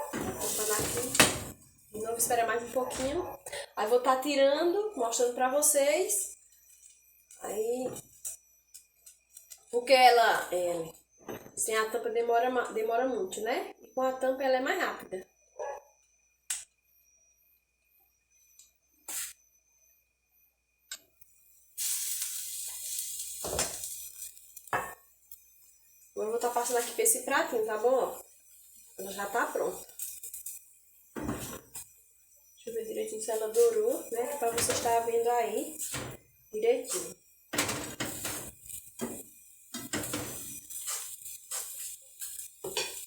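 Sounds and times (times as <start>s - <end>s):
batter sizzling in frying pan: 0.0s - 2.7s, 21.7s - 43.0s
spatula scraping a frying pan: 36.8s - 43.0s.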